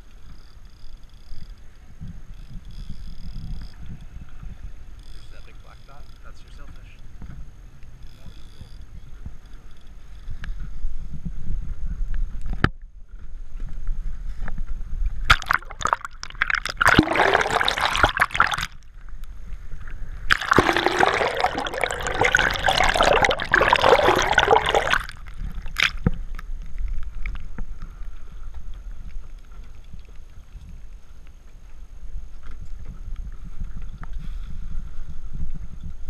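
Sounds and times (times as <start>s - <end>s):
water splashing and rushing: 15.3s - 18.8s, 20.3s - 26.1s
boat engine rumbling: 20.3s - 25.8s.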